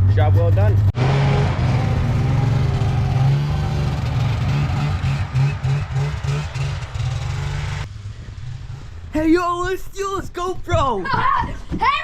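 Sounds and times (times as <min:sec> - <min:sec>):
snowmobile engine running: 0:01.0 - 0:07.9.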